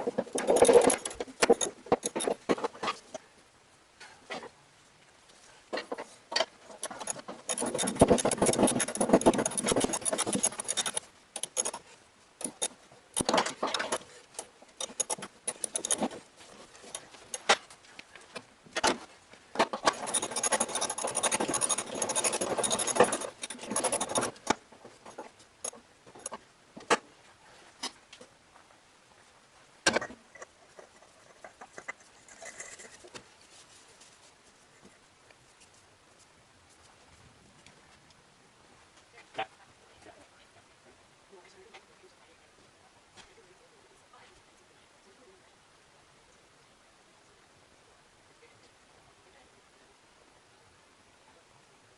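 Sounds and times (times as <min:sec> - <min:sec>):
hand tools clicking on metal: 0:00.1 - 0:02.5, 0:06.7 - 0:17.6, 0:19.8 - 0:26.4.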